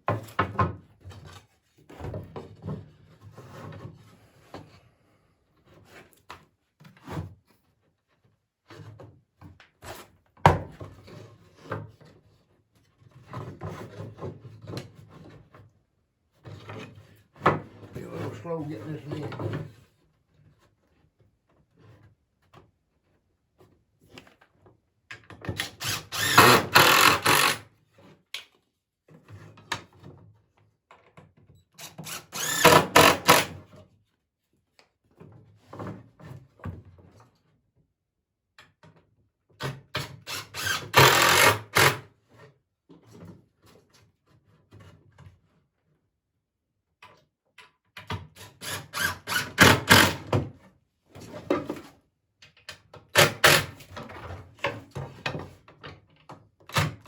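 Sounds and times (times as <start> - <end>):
power drill driving screws into wood: 25.5 - 27.6, 31.8 - 33.6, 40.0 - 42.1, 48.4 - 50.4, 53.2 - 53.9.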